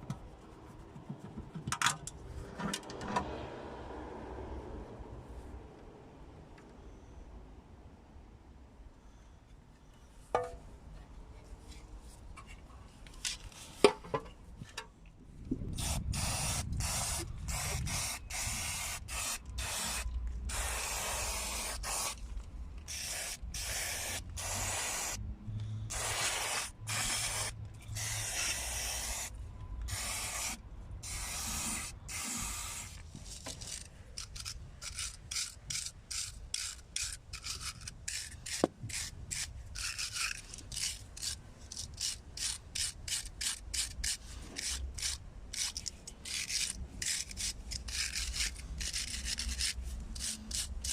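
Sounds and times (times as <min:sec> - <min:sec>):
hand scraping gasket sealant: 0:31.2 - 0:50.9.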